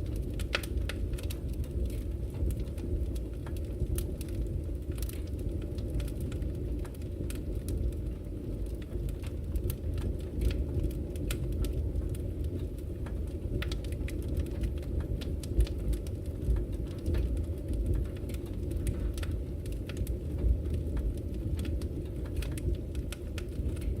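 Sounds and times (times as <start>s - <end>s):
fire rumbling: 0.0s - 24.0s
wood crackling and popping: 0.0s - 24.0s.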